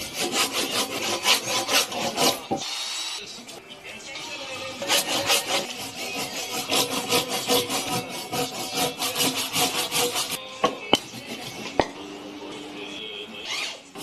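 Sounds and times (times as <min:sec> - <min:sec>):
hand tool scraping wood: 0:00.0 - 0:02.6, 0:04.8 - 0:10.4, 0:11.0 - 0:11.8.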